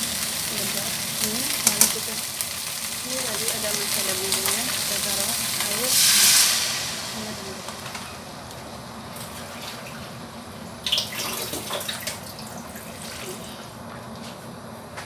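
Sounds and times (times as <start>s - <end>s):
food sizzling in a wok: 0.0s - 13.8s
liquid pouring: 10.8s - 13.7s.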